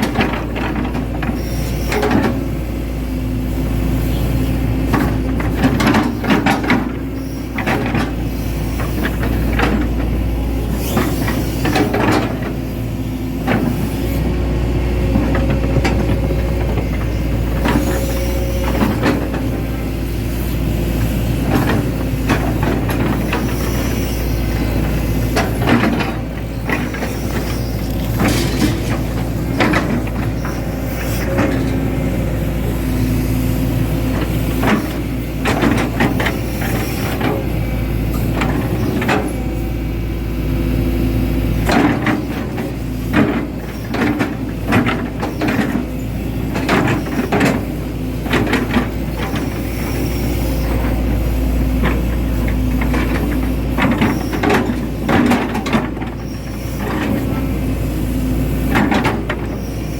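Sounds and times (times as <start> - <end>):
excavator diesel engine running: 0.0 - 59.9
knocks and clanks: 24.6 - 31.8.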